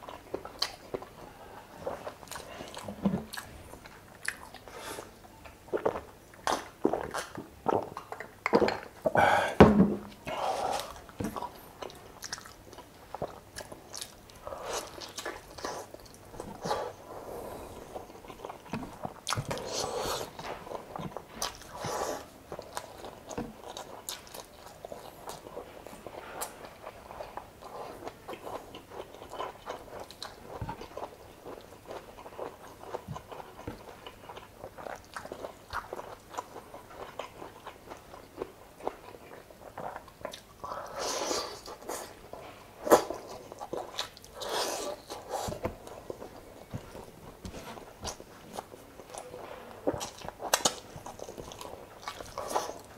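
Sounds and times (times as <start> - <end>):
chewing with wet mouth clicks: 0.0 - 1.2, 1.8 - 4.7, 5.3 - 9.1, 10.8 - 17.0, 17.9 - 52.9.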